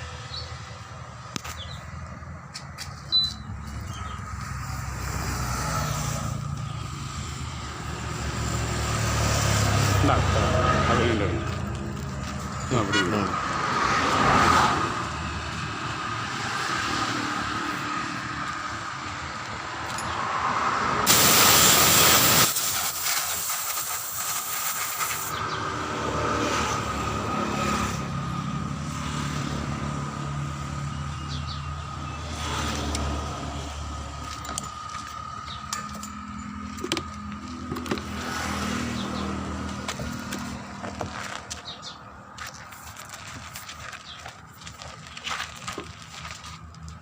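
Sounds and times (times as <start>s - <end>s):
compressed air hissing: 21.1s - 25.4s.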